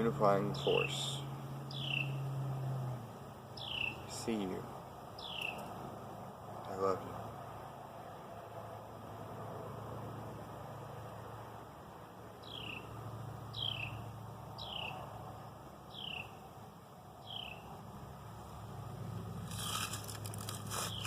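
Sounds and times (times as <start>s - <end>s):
small animal chirping: 1.7s - 2.2s
crackling rustle: 19.4s - 21.0s.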